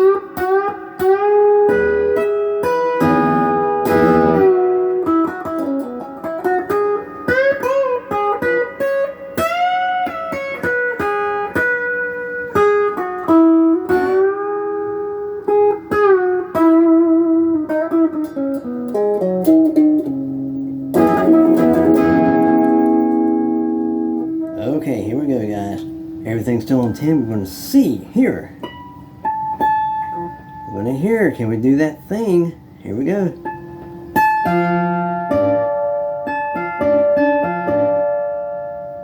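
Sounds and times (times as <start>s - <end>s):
overdriven electric guitar lead: 0.0s - 24.7s.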